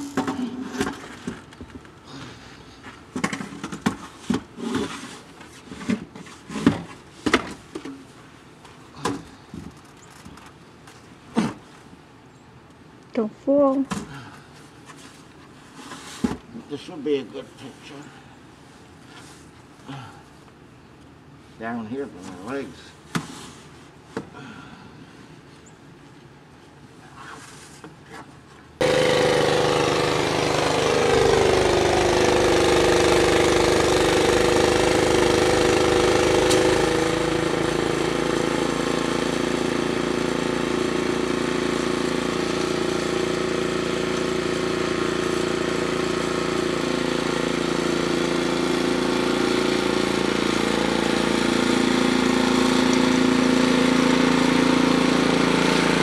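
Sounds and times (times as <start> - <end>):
engine running: 28.8 - 56.0.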